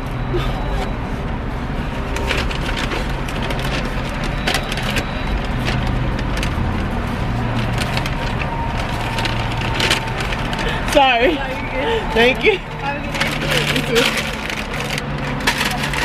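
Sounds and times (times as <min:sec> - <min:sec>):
vehicle idling: 0:00.0 - 0:16.0
crackling and rustling clicks: 0:02.1 - 0:11.0, 0:13.0 - 0:16.0.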